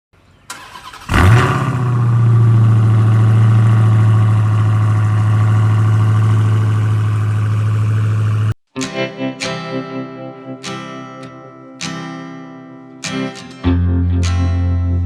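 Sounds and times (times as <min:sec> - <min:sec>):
car engine starting and idling: 0:00.4 - 0:08.6.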